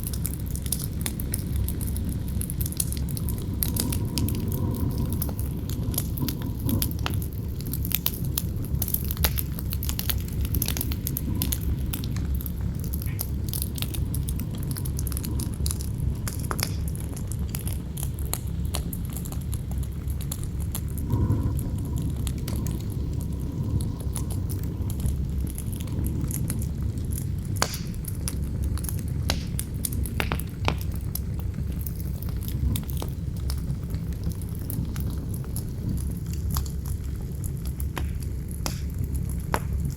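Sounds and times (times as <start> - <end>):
campfire crackling and popping: 0.0 - 39.9
low rumble of wind: 0.0 - 39.9.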